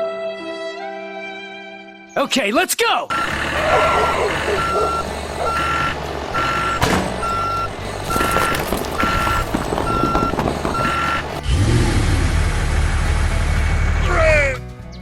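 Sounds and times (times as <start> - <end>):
reversing alarm beeping: 3.1 - 11.5.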